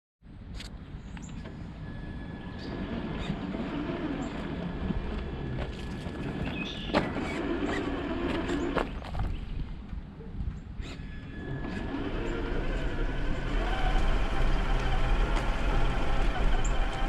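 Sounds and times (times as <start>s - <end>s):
electric motor whining: 2.0s - 9.0s, 10.8s - 17.0s.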